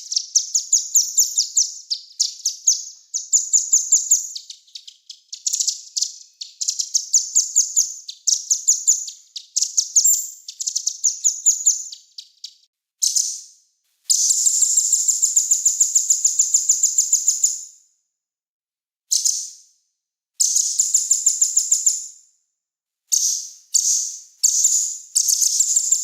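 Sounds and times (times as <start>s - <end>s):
songbird trilling: 0.0s - 13.3s.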